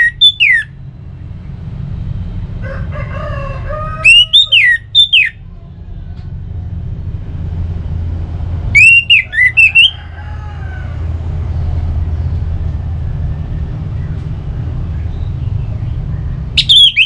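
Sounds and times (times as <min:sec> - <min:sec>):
thrush singing whistled notes: 0:00.0 - 0:00.9, 0:04.0 - 0:05.5, 0:08.7 - 0:10.0, 0:13.3 - 0:17.0
steady low rumble: 0:00.6 - 0:04.1, 0:04.8 - 0:17.0.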